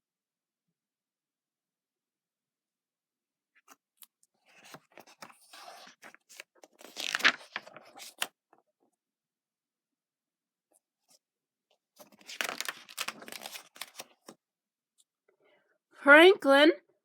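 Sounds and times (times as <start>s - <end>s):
paper rustling and crinkling: 4.4s - 8.4s, 11.9s - 14.4s.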